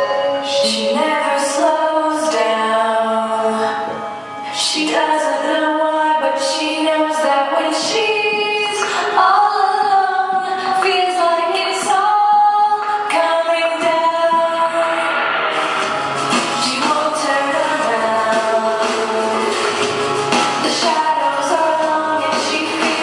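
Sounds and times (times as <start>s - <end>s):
woman singing long notes: 0.0s - 15.0s, 16.6s - 19.7s
music: 0.0s - 23.0s.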